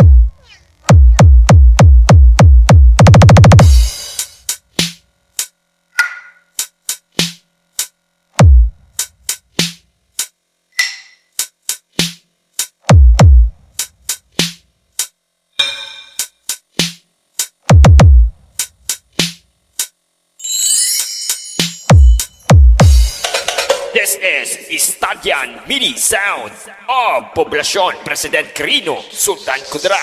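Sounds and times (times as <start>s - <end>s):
drum machine clicks and hits: 0.9s - 20.0s, 21.3s - 24.0s.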